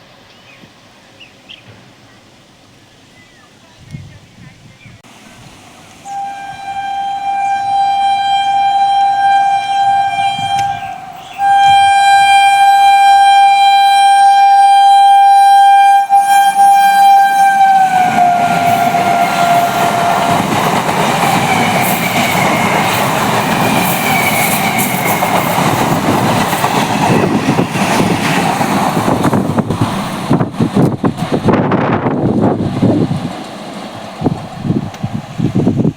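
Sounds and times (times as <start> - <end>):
train wheels rumbling on track: 5.0 - 35.9
train horn blasts: 6.0 - 20.7.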